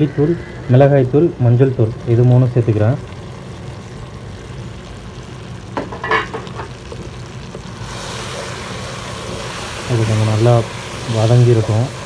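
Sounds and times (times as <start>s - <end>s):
food sizzling in a pan: 0.0s - 12.0s
stirring in a pan: 5.8s - 12.0s.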